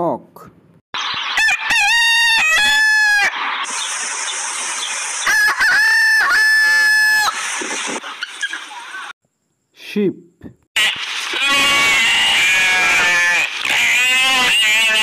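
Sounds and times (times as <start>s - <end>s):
rooster crowing: 1.3s - 3.4s, 5.2s - 7.4s.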